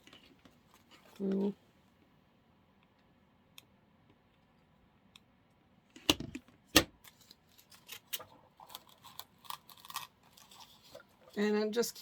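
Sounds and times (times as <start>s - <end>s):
artificial flowers rustling: 7.2s - 12.0s.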